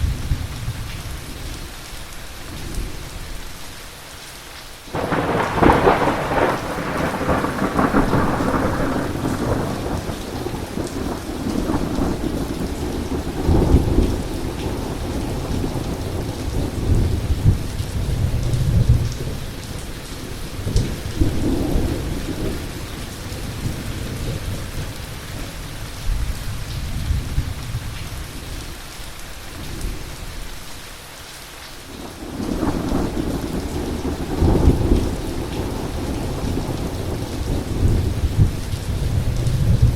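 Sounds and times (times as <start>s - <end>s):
heavy rain: 0.0s - 39.9s
rolling thunder: 4.9s - 19.6s, 32.0s - 39.9s.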